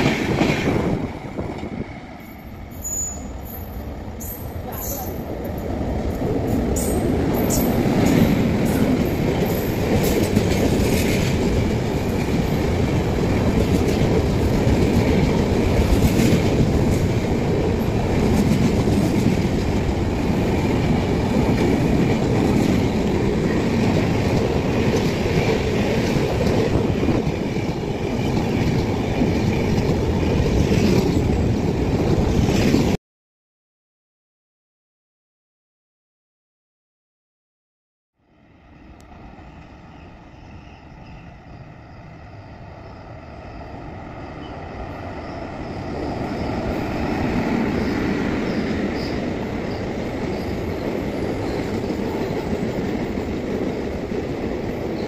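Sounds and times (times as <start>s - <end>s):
train wheels rushing on rail: 0.0s - 33.0s, 38.7s - 55.0s.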